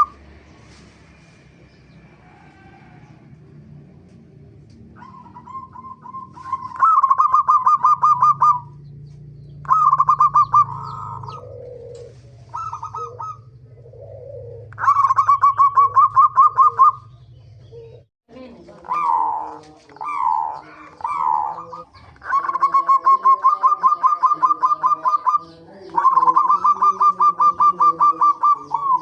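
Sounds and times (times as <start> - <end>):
dove staccato cooing: 4.8 - 18.1, 18.7 - 29.0
soft low dove coos: 9.6 - 18.1, 18.8 - 29.0.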